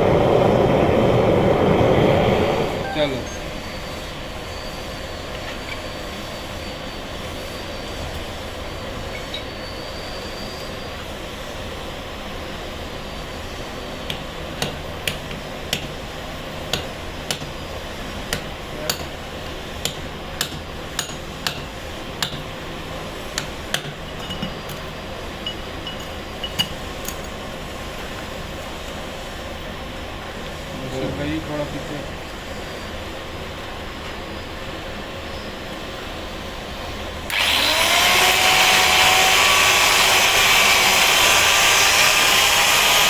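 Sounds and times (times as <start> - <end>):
hammer tapping on stone: 16.7 - 17.5, 18.3 - 19.1, 19.8 - 22.5.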